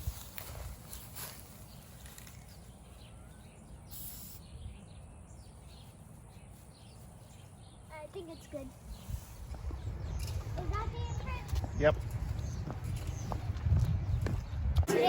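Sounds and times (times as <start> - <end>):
faint bird chirps: 0.9 - 11.9
spray-paint can hiss: 3.9 - 4.5.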